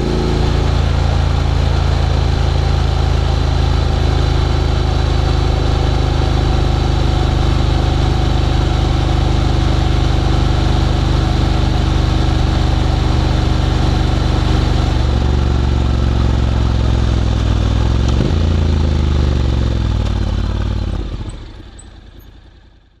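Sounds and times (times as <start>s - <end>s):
engine revving blip: 0.0s - 2.0s
motorcycle engine idling: 0.0s - 23.0s.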